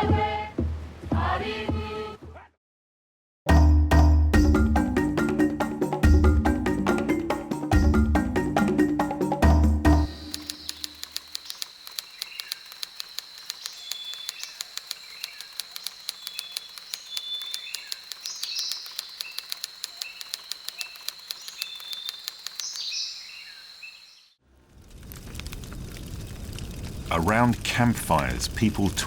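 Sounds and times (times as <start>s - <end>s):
rapid ticking: 8.6s - 22.9s
birds chirping: 10.1s - 24.4s.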